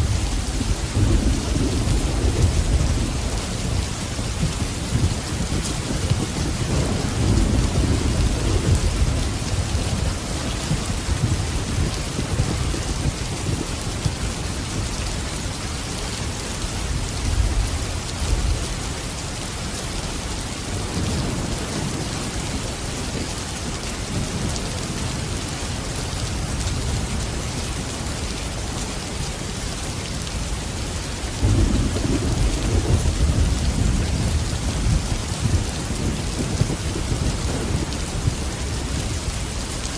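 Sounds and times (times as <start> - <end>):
rolling thunder: 0.0 - 13.7, 31.3 - 39.7
steady rain: 0.0 - 39.9.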